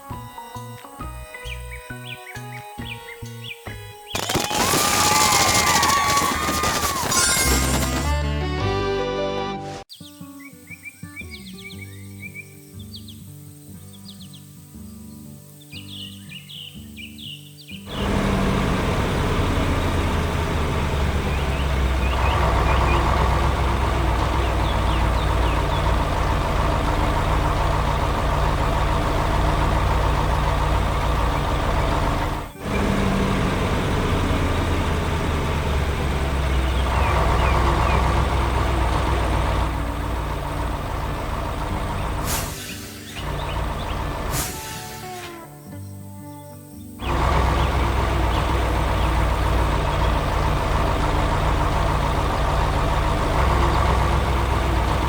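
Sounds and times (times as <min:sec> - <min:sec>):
excavator diesel engine running: 0:04.2 - 0:08.1, 0:17.9 - 0:45.5, 0:47.0 - 0:55.0.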